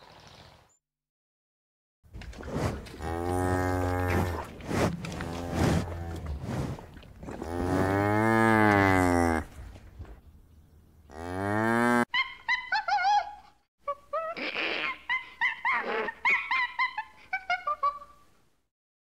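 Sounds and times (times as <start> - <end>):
cow mooing: 7.4 - 9.5, 11.1 - 12.0.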